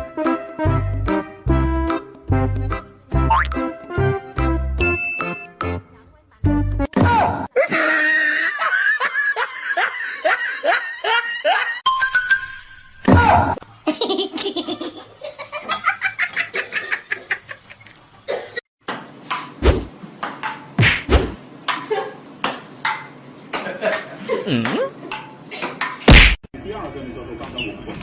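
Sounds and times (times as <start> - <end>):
music: 0.0 - 6.9.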